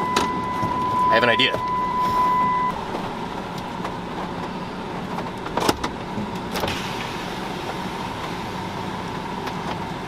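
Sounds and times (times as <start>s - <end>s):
rain on a vehicle: 6.2s - 10.0s.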